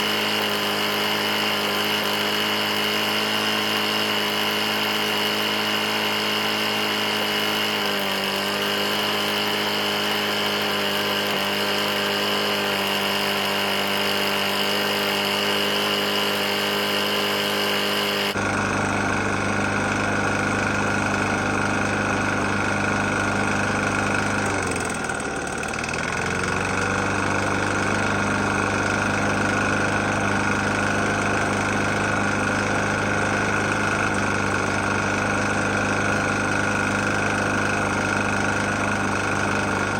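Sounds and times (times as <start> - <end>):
lawn mower engine knocking: 0.0 - 39.9.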